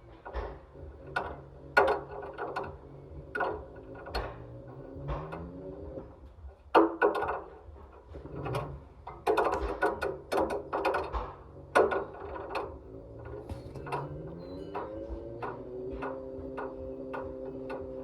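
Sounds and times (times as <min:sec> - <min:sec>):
motor hum: 0:00.0 - 0:18.0
ball knocking in washing machine drum: 0:13.4 - 0:14.4.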